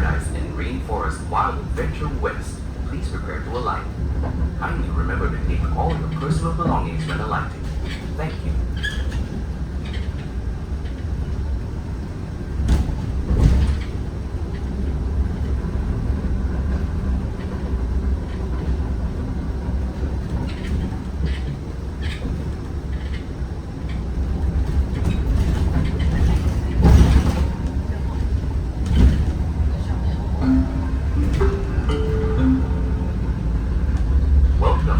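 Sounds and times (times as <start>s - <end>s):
bus cabin rumble: 0.0s - 34.9s.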